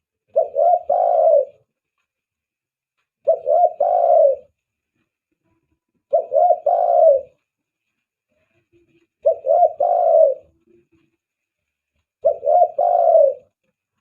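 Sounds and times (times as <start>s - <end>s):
dove cooing: 0.3s - 1.7s, 3.2s - 4.6s, 6.1s - 7.5s, 9.0s - 11.0s, 12.2s - 13.6s.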